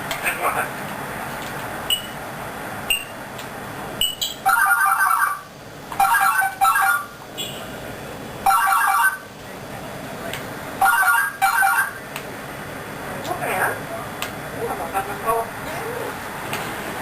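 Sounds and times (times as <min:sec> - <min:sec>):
parrot mimicking phone ringtone: 0:04.4 - 0:07.1, 0:08.4 - 0:09.3, 0:10.8 - 0:12.0.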